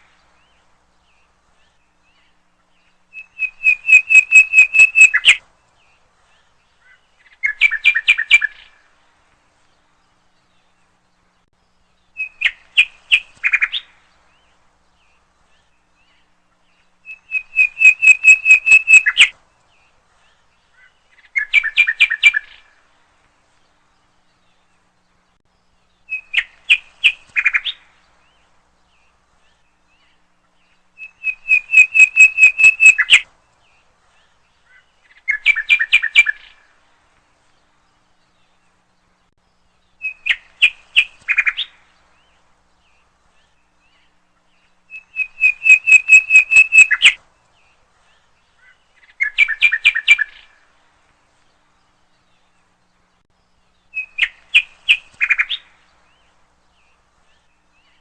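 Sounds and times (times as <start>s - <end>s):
songbird singing: 0.0s - 58.0s.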